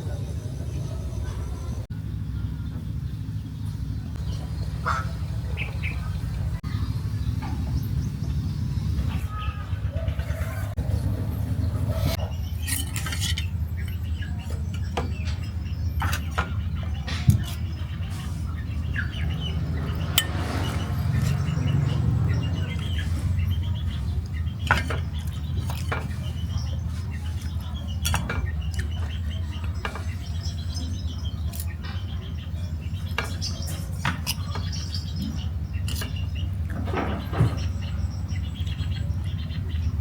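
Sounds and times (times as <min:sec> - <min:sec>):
utensils clinking against dishes: 0:11.9 - 0:18.6, 0:19.9 - 0:39.1.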